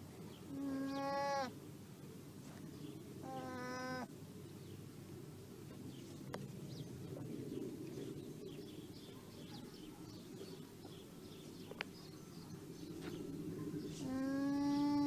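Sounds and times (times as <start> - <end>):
birds chirping: 4.6 - 15.0.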